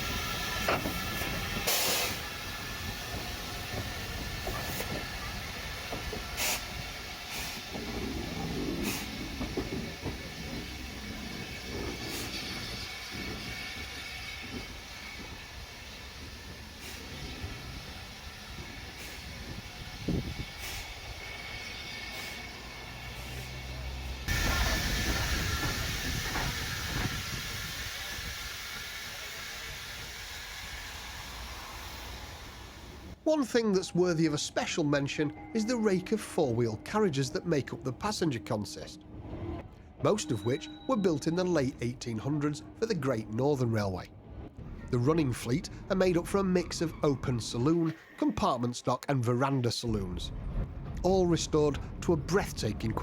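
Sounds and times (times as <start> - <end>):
steam locomotive hissing: 0.0 - 38.9
low locomotive rumble: 0.0 - 48.0, 49.9 - 53.0.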